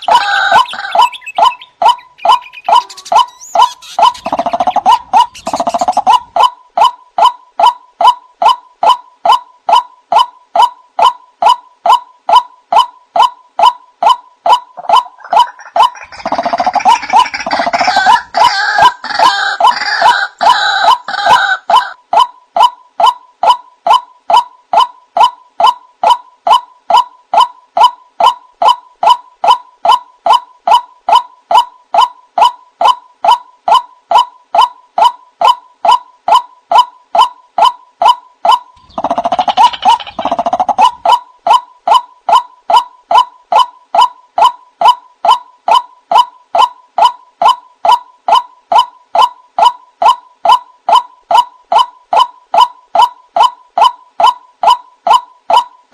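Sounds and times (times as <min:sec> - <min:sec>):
harsh bird call: 0:00.0 - 0:06.5
waterhen short repeated notes: 0:00.0 - 0:55.9.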